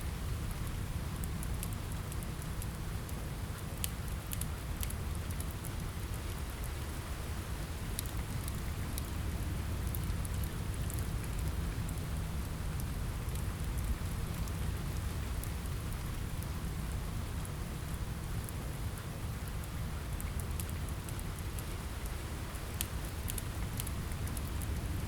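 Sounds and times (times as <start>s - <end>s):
rain on a window: 0.0s - 25.0s
fire crackling: 7.6s - 25.0s.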